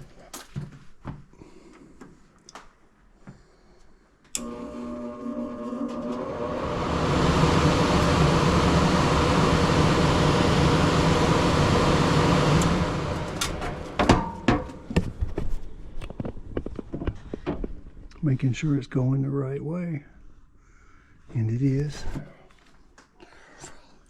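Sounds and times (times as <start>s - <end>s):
blower air rushing: 4.4s - 15.0s
sharp knocks and clatters: 13.6s - 17.9s.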